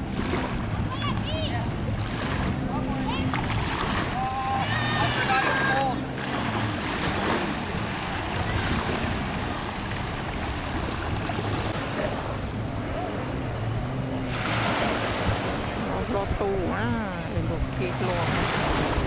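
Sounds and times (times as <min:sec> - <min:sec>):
moving water: 0:00.0 - 0:19.0
wind on the microphone: 0:06.8 - 0:19.0.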